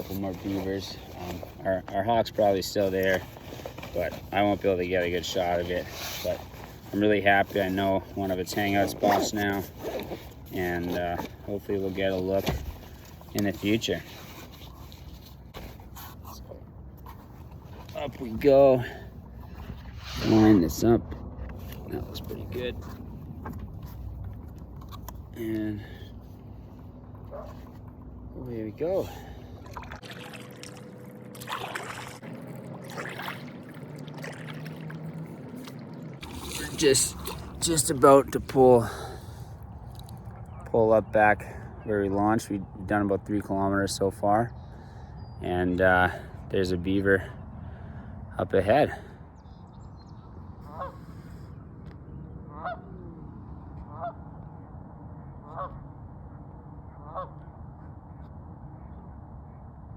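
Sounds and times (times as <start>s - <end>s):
water trickling off paddle: 29.5s - 40.8s
paddle splashing in water: 29.6s - 38.5s
goose honking: 50.7s - 51.1s, 57.0s - 57.4s.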